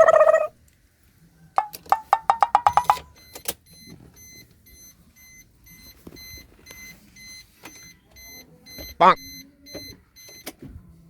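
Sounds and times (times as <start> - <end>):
sharp ringing clicks: 1.6 - 3.5
alarm clock beeping: 1.9 - 3.4.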